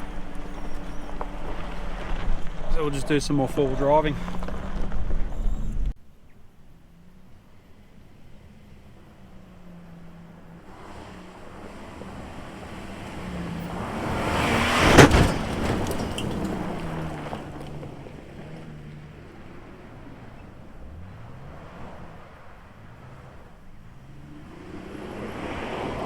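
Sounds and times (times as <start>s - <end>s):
vehicle engine and tyre noise: 0.0s - 26.0s
sharp crack: 10.7s - 23.5s.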